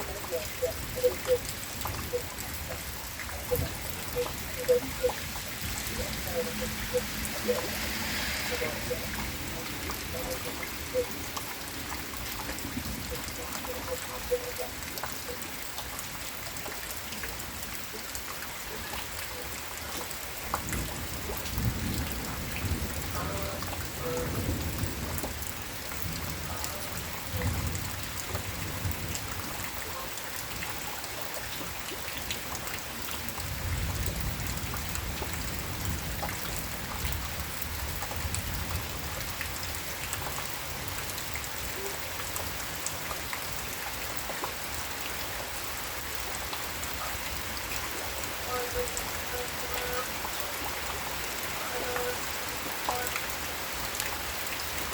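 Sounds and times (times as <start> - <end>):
thunder rumbling: 0.0 - 14.9, 20.6 - 29.6
steady rain falling: 0.0 - 54.9.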